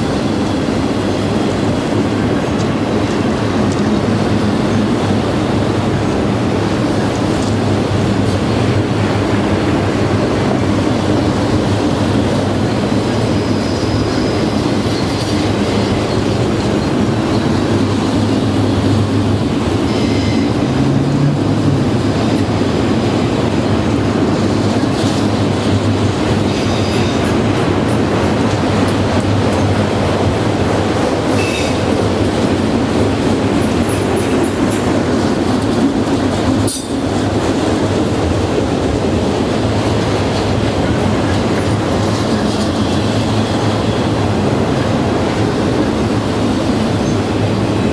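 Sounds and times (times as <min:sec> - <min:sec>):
train wheels rushing on rail: 0:00.0 - 0:47.9
high wheel squeals: 0:19.5 - 0:22.2.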